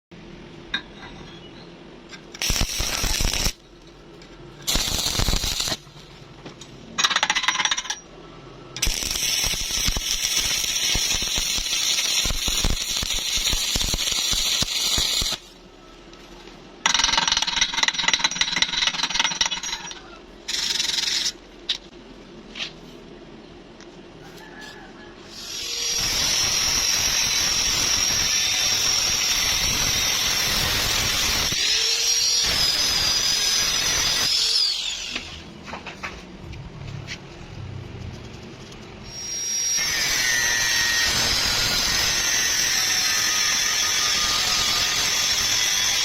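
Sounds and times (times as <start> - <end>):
welding arc crackling: 2.4 - 3.7, 4.6 - 6.1, 8.8 - 15.6, 25.4 - 35.4, 38.8 - 46.0.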